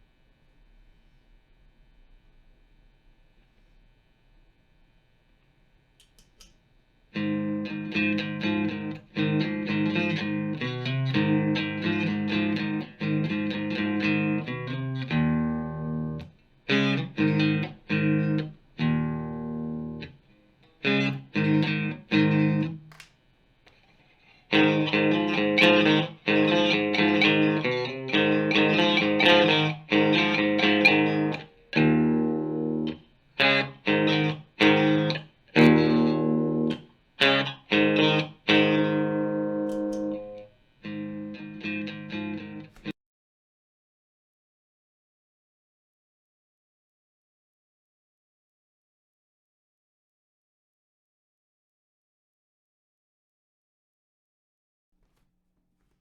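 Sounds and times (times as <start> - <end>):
overdriven electric guitar chords: 7.1 - 23.1, 24.5 - 42.9.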